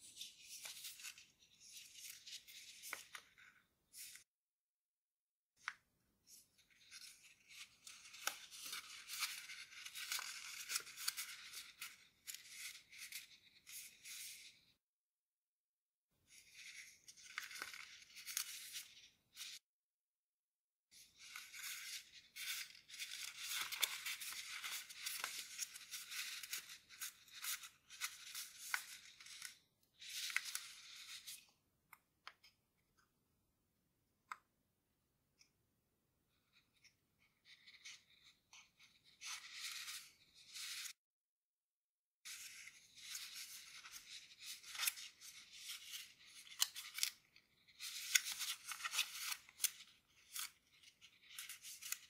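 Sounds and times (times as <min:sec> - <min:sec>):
paper rustling and crinkling: 0:06.3 - 0:14.5, 0:16.4 - 0:19.6, 0:21.2 - 0:31.4, 0:42.3 - 0:52.0.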